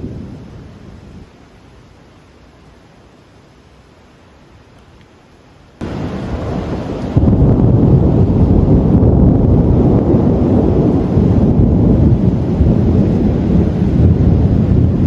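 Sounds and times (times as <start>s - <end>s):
rolling thunder rumble: 0.0s - 1.3s, 5.8s - 15.0s.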